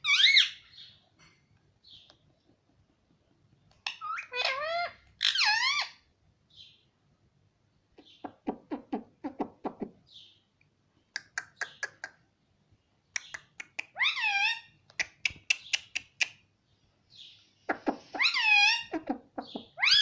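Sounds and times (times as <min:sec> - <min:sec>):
parrot clicks and chirps: 0:11.1 - 0:12.2, 0:13.1 - 0:16.5
parrot swooping calls: 0:17.8 - 0:19.0.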